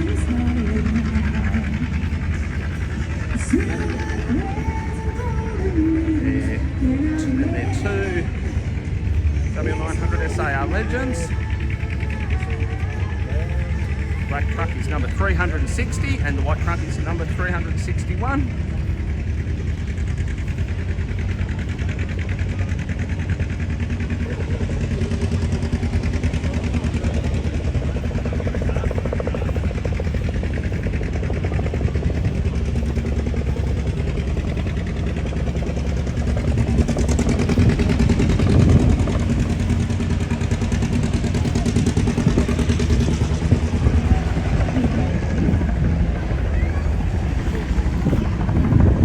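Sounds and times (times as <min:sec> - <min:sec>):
large engine idling: 0:00.0 - 0:49.0.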